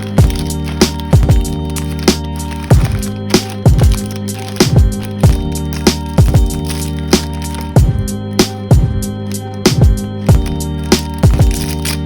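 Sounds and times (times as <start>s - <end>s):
deep kick drums: 7.8s - 8.1s, 8.7s - 9.1s.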